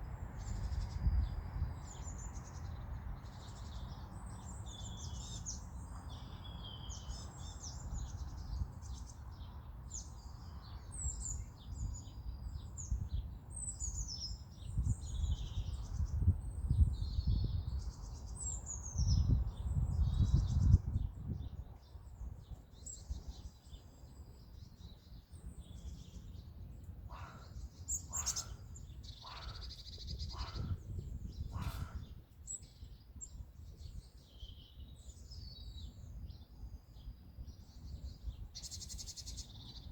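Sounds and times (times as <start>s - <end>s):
wild birds singing: 0.0s - 39.9s.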